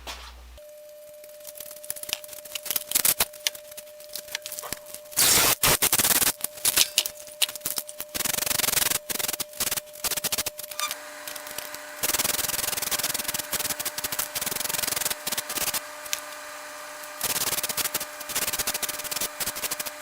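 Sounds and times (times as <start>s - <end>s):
aerosol spray hissing: 5.2s - 6.0s, 11.6s - 15.8s.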